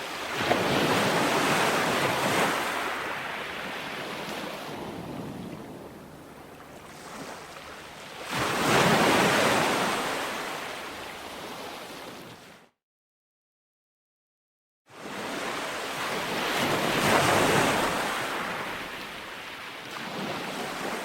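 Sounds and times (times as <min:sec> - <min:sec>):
ocean waves washing onto shore: 0:00.0 - 0:12.6, 0:15.0 - 0:21.0.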